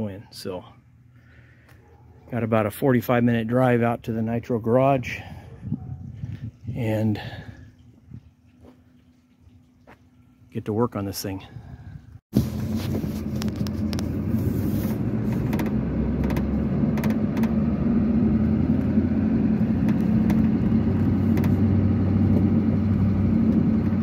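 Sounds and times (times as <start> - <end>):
vehicle engine running: 12.4 - 24.0
knocks and rattles: 15.3 - 17.6, 19.6 - 24.0.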